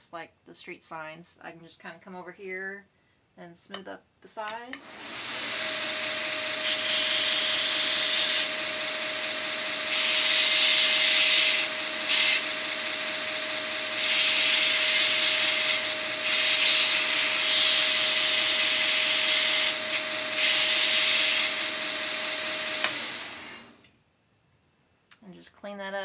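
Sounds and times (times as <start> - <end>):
belt sander humming: 4.8 - 23.9
metal grinding hiss: 9.9 - 12.5, 13.9 - 21.7.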